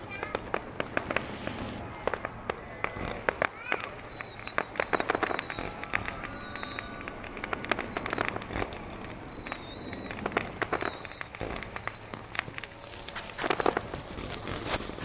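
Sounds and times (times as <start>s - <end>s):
fireworks crackling pops: 0.0s - 15.0s
fireworks whistles falling in pitch: 2.9s - 15.0s.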